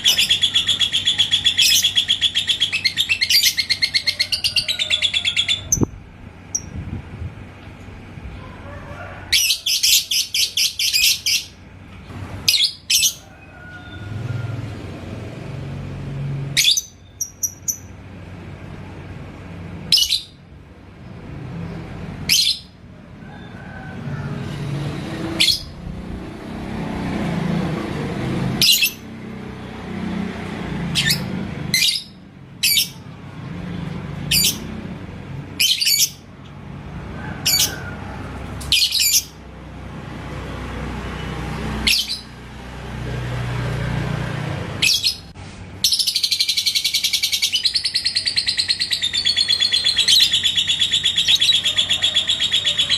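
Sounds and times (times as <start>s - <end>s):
lovebird chirping: 0.0s - 6.8s, 16.6s - 17.9s, 44.9s - 52.9s.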